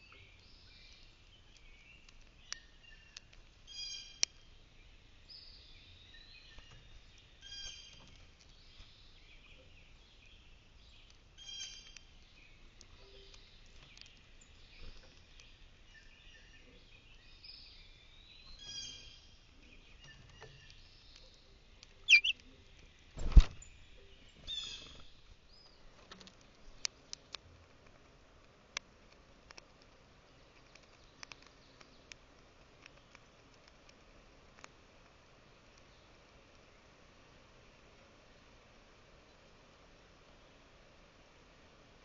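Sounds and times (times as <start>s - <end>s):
songbirds chirping: 0.0s - 42.0s
sharp clicks: 21.8s - 22.5s.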